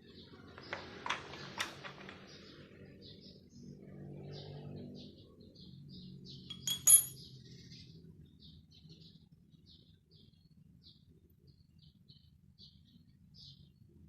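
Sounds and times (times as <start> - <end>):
small bird chirping: 4.4 - 14.0
sharp ringing clicks: 6.5 - 7.2.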